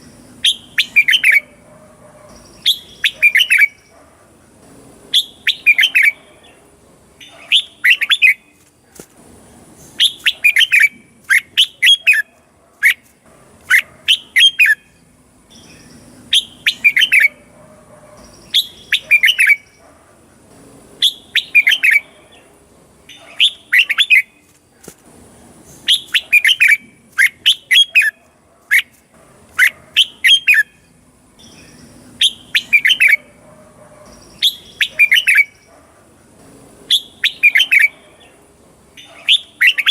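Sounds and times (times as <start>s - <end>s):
bird singing chirped notes: 0.0s - 1.7s, 2.3s - 3.9s, 5.1s - 6.6s, 13.7s - 19.8s, 21.0s - 24.5s, 29.6s - 33.3s, 34.1s - 35.6s, 36.9s - 38.4s.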